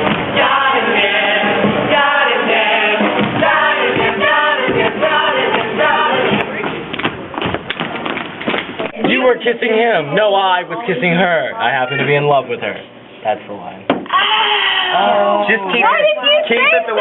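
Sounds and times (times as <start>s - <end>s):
group singing over music: 0.0s - 6.7s.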